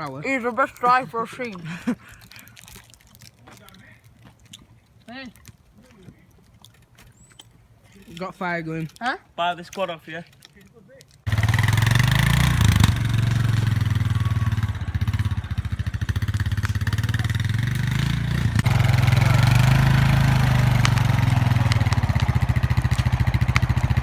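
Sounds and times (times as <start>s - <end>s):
quad bike engine revving: 11.3s - 24.0s.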